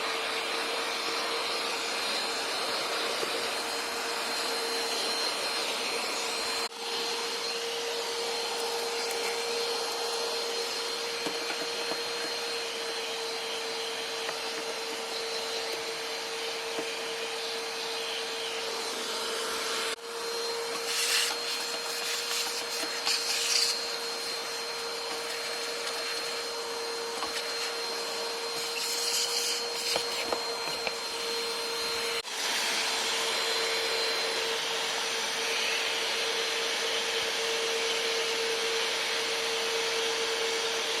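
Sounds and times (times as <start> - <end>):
vacuum cleaner whining: 0.0 - 41.0
scratchy nozzle bursts: 20.7 - 24.6, 28.5 - 30.4.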